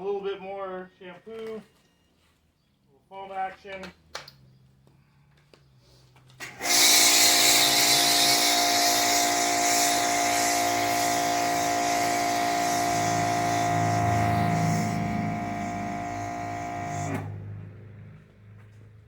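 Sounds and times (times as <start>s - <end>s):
pressure washer pump humming: 6.4s - 17.4s
foam spraying hiss: 6.5s - 17.2s.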